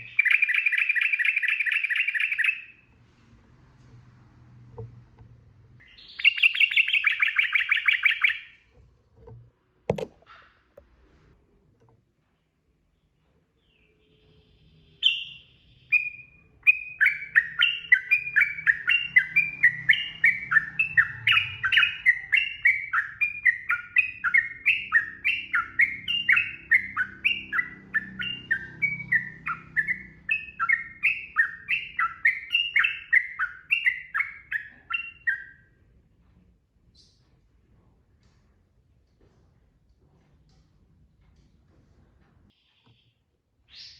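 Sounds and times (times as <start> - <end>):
bird singing whistled notes: 0.0 - 2.8, 5.8 - 8.6, 13.7 - 35.7.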